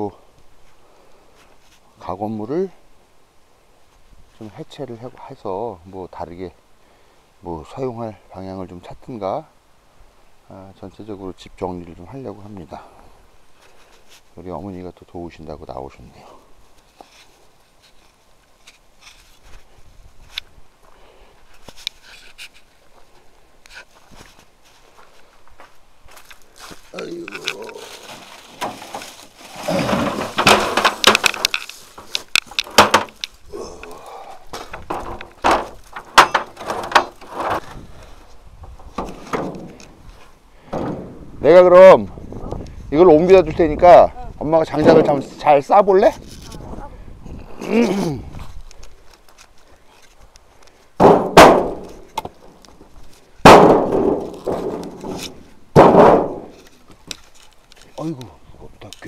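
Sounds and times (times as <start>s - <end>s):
firewood logs knocking together: 26.1s - 37.8s, 38.6s - 41.2s, 48.7s - 58.2s.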